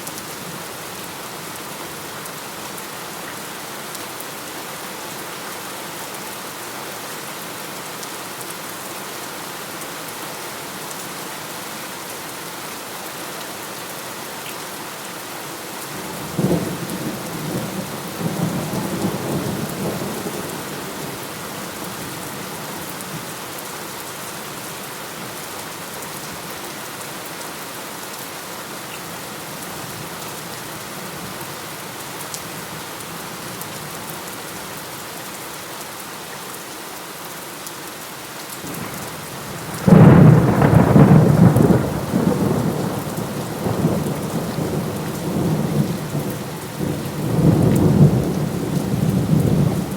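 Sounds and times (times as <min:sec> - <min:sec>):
steady rain falling: 0:00.0 - 0:49.9
thunder clap and rumble: 0:39.6 - 0:49.9.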